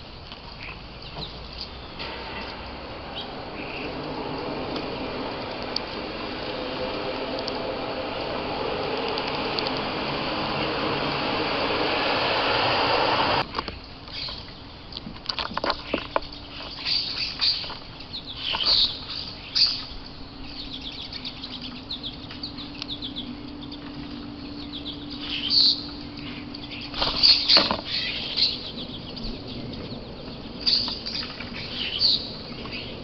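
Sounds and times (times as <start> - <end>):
small birds chirping: 0.5 - 2.5, 15.8 - 33.0
wing flutters: 1.5 - 13.4.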